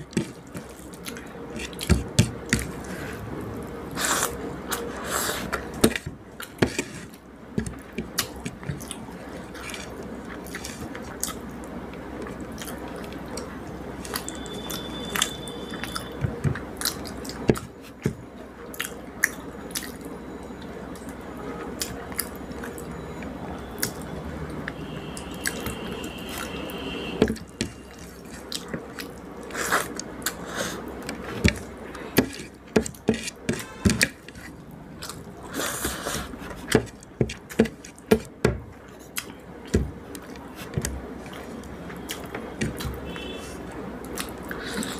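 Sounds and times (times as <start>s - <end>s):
chewing with mouth clicks: 7.7s - 16.2s, 27.4s - 32.3s, 34.3s - 36.0s, 40.1s - 44.9s.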